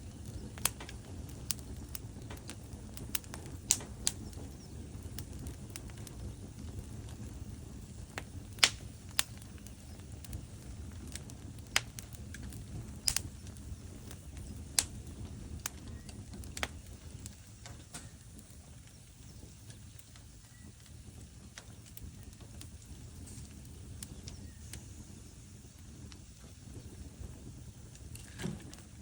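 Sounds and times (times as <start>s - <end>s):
flames rumbling: 0.0s - 29.0s
logs crackling and popping: 0.0s - 29.0s.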